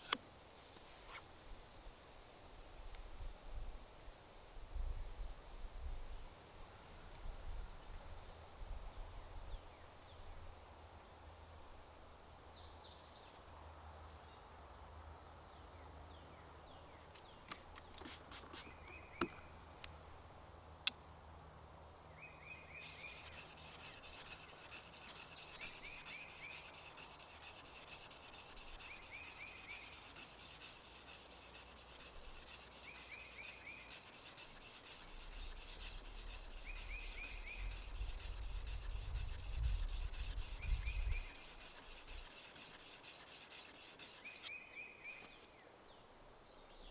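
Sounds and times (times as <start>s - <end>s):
bird chirping: 22.2s - 32.1s, 32.7s - 38.4s
tool rasping wood: 22.8s - 44.5s.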